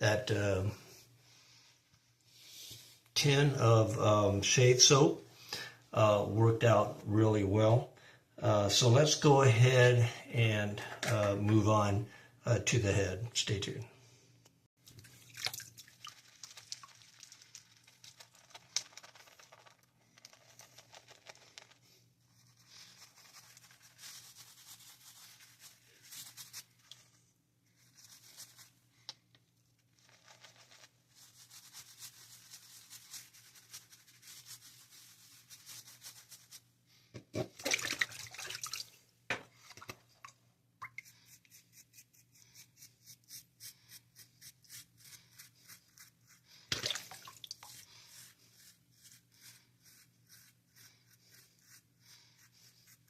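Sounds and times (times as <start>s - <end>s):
razor shaving scalp: 41.0s - 46.4s, 47.7s - 53.0s.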